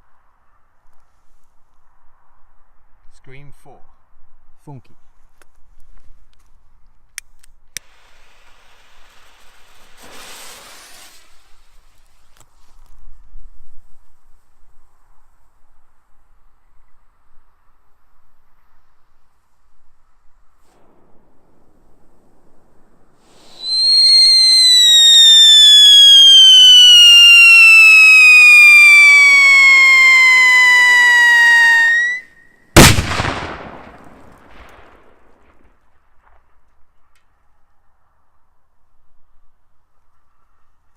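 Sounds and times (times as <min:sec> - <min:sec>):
firework fuse hissing: 0:07.8 - 0:13.0, 0:23.0 - 0:32.2.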